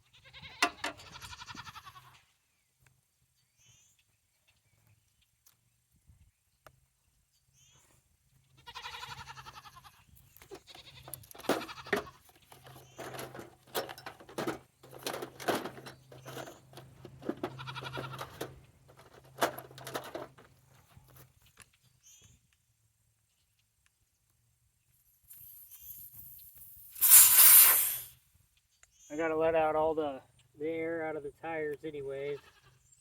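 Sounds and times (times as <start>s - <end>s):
livestock bleating: 0.0s - 2.2s, 8.6s - 12.2s, 17.4s - 18.5s, 32.2s - 32.9s
sharp clicks and knocks: 10.4s - 20.5s.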